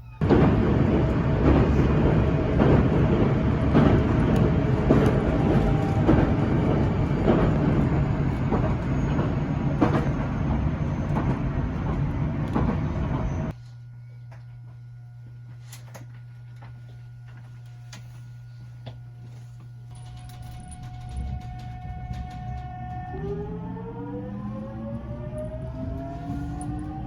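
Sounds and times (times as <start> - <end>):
rail joint clicks: 0.0 - 13.5, 19.9 - 27.0
train wheels rumbling on rails: 0.0 - 13.5, 19.9 - 27.0.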